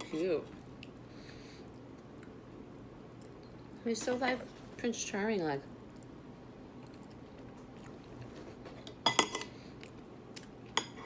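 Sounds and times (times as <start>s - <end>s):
cutlery clinking against a dish: 9.0s - 9.5s.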